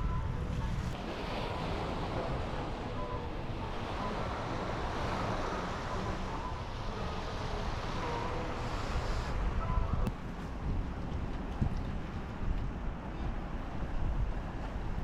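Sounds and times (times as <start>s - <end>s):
wind buffeting microphone: 8.5s - 15.0s.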